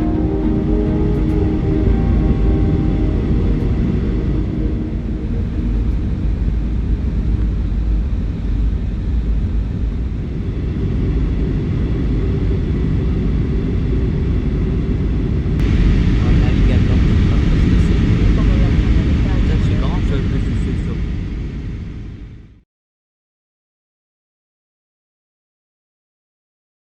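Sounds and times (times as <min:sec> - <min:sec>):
music: 0:00.0 - 0:08.4.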